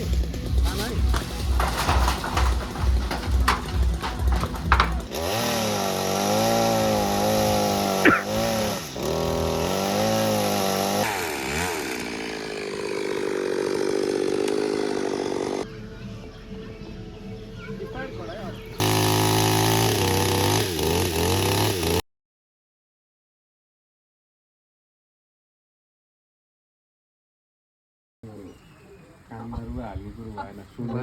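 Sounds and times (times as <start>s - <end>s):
chainsaw cutting: 0.0s - 15.7s, 18.8s - 22.0s.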